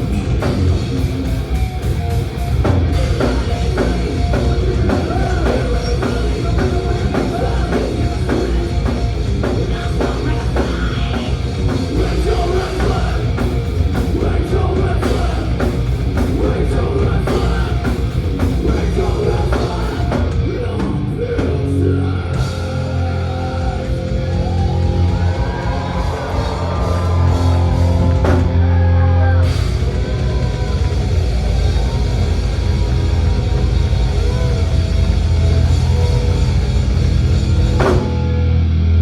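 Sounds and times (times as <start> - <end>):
fast pounding drum kit: 0.0 - 38.7
bass guitar: 0.0 - 39.0
distorted electric guitars: 0.0 - 39.0
person singing: 3.0 - 30.4.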